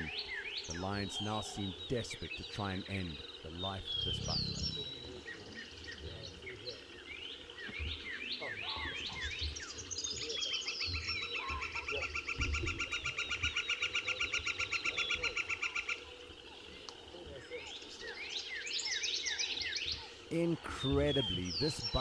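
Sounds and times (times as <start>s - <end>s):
loud bird trill: 0.0s - 6.1s, 18.2s - 22.0s
birds chirping: 0.0s - 22.0s
low uneven rumble: 3.6s - 5.3s.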